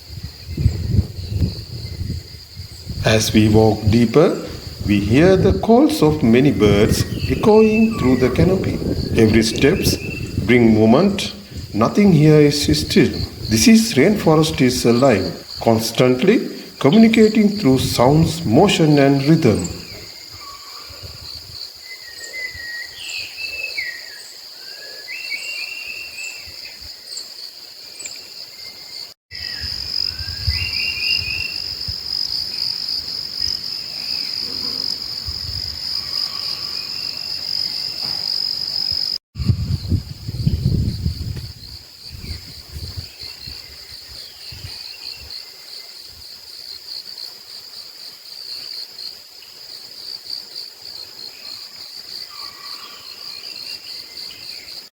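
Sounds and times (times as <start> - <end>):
insects chirring: 0.0 - 54.9
whistled bird calls: 7.0 - 8.7, 21.9 - 26.4.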